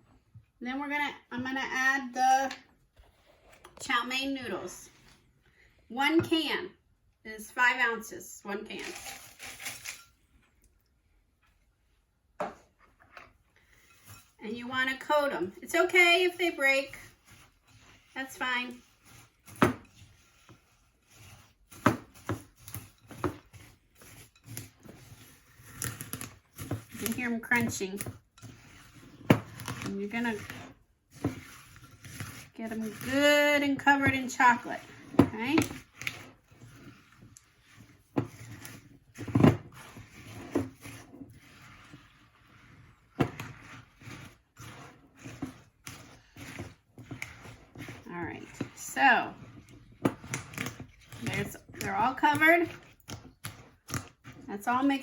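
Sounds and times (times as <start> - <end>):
noodles crunching and scraping: 8.7 - 10.5, 13.1 - 55.0.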